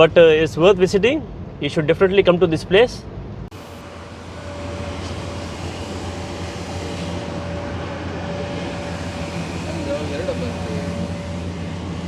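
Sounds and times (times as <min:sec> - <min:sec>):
vehicle running hum: 0:03.2 - 0:12.0
thin steady whine: 0:03.4 - 0:12.0.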